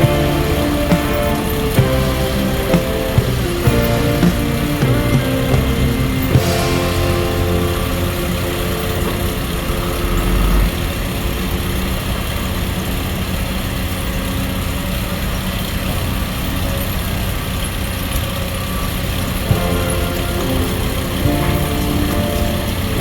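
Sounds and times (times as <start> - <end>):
excavator diesel engine running: 0.0 - 12.1.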